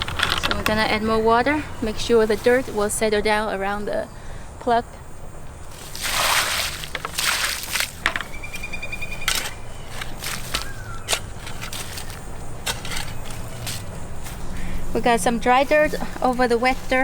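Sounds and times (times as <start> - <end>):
water pouring onto soil: 5.7 - 8.0.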